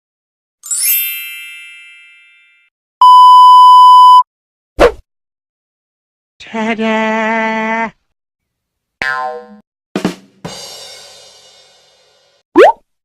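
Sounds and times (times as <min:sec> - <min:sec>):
bright multi-tone chime: 0:00.6 - 0:02.7
censor bleep: 0:03.0 - 0:04.3.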